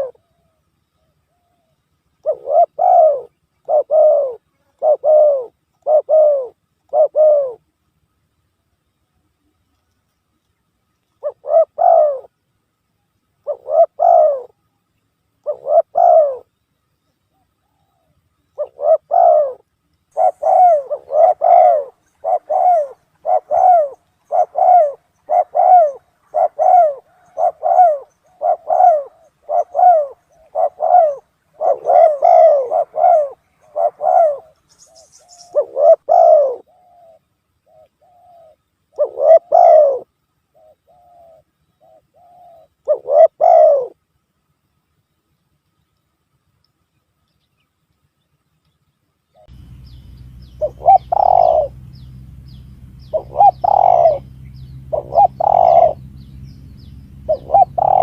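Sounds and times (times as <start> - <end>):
dove cooing: 0.0 - 7.7, 11.2 - 12.3, 13.4 - 14.6, 15.4 - 16.5, 17.6 - 44.0, 49.4 - 58.0
faint high chirps: 45.2 - 58.0.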